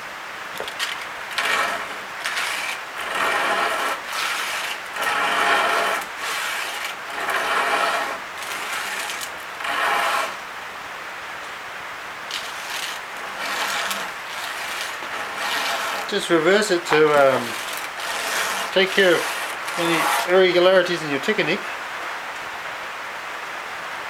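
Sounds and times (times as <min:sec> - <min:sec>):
hand scraping hardwood: 0:00.6 - 0:10.4, 0:12.3 - 0:21.4.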